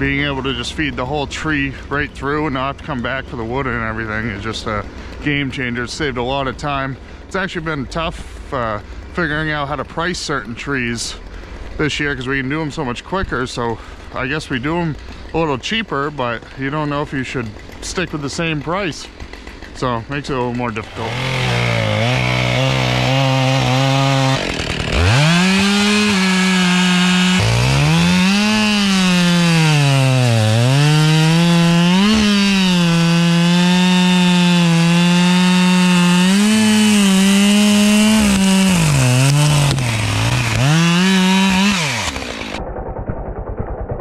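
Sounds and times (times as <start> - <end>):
chainsaw cutting wood: 0.0 - 44.0.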